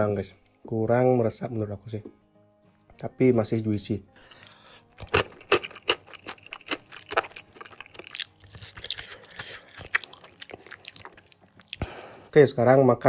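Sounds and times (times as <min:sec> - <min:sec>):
wet chewing clicks and smacks: 0:04.3 - 0:11.9.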